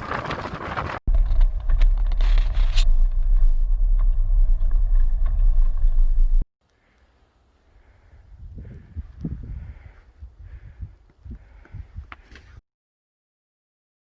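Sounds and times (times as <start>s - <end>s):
loud deep rumble: 1.1s - 6.5s.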